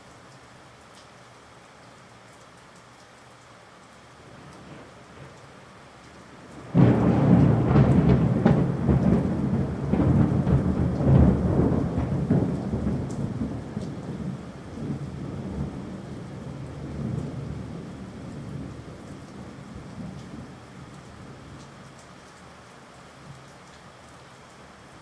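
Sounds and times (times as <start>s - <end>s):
rain falling: 0.0s - 25.0s
thunder crack and rumble: 6.5s - 20.6s.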